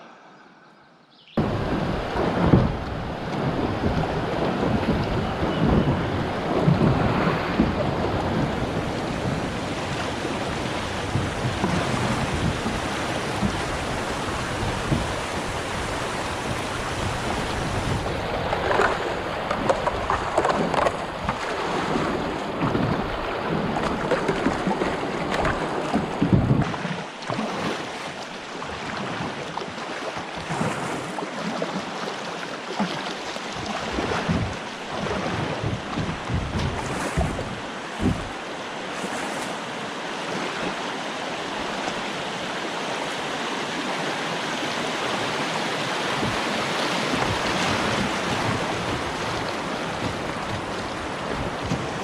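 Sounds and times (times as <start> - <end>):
moving water: 0.0 - 52.0
wind buffeting microphone: 1.4 - 26.9, 33.5 - 39.2, 43.7 - 52.0.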